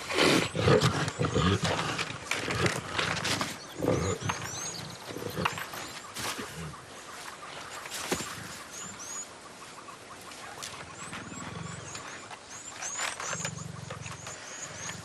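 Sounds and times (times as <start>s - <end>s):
lions growling: 0.1s - 6.8s, 10.9s - 15.0s.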